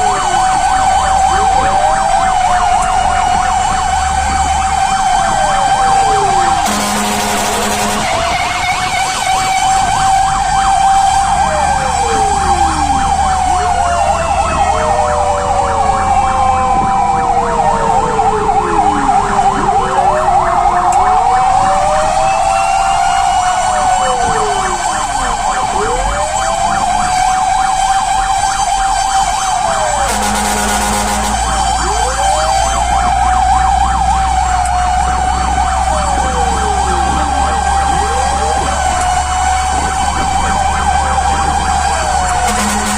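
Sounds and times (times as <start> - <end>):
siren fast pulsing yelp: 0.0 - 17.4, 18.9 - 42.9
fire truck sirens wailing: 0.0 - 42.9
fire truck horn blasts: 6.3 - 10.2, 29.9 - 32.6, 41.8 - 42.9.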